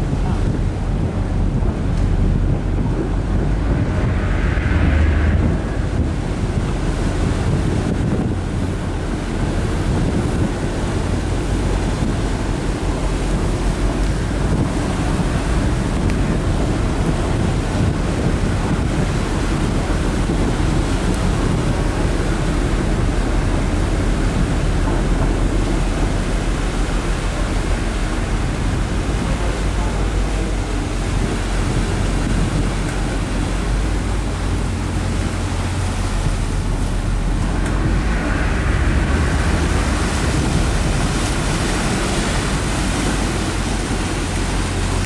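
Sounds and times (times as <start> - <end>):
ferry engine drone: 0.0 - 45.0
rush of wind and water: 0.0 - 45.0
wind buffeting microphone: 0.0 - 45.0.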